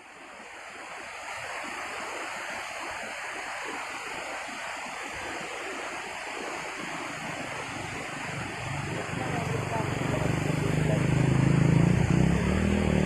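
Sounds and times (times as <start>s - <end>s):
waterfall splashing: 0.0s - 13.0s.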